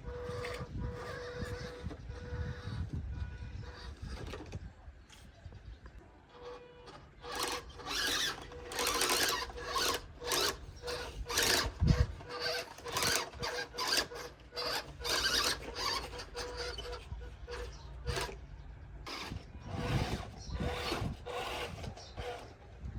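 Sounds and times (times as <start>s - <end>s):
electric motor whine: 0.0s - 4.4s, 6.3s - 18.4s, 19.1s - 22.7s
tyres spinning on loose dirt: 6.3s - 18.5s.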